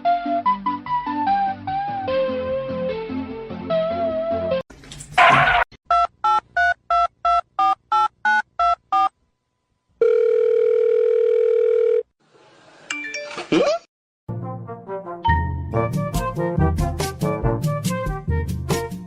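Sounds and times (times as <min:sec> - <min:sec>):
steady phone tone: 0:10.0 - 0:12.1.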